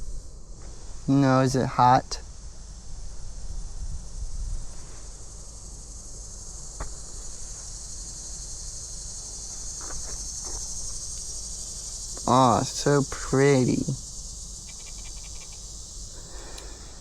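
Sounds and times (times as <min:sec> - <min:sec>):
insects droning: 0:00.0 - 0:17.0
faint clicks: 0:14.6 - 0:17.0.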